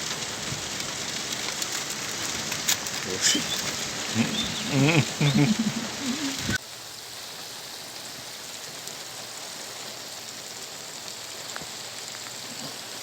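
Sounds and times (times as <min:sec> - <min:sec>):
steady rain falling: 0:00.0 - 0:13.0
wavering voice-like sound: 0:03.1 - 0:06.6.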